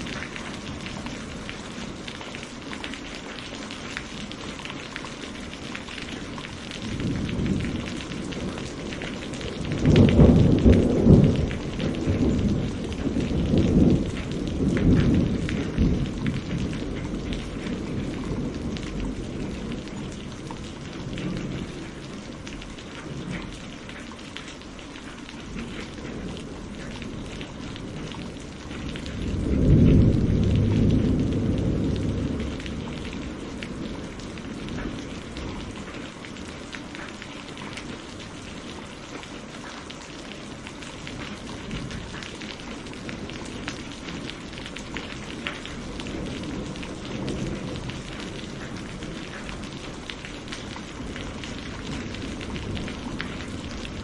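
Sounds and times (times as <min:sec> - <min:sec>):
steady rain falling: 0:00.0 - 0:54.0
rolling thunder: 0:06.7 - 0:22.3, 0:25.5 - 0:36.0, 0:41.1 - 0:54.0.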